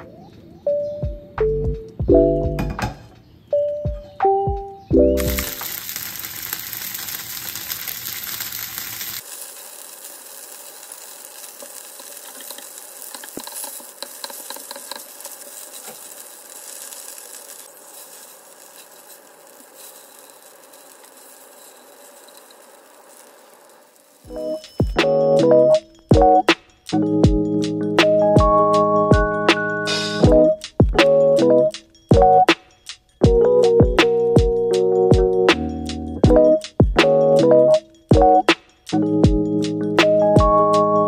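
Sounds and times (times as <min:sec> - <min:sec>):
utensils tapping pan: 0:05.2 - 0:25.6
food sizzling in oil: 0:05.2 - 0:26.9.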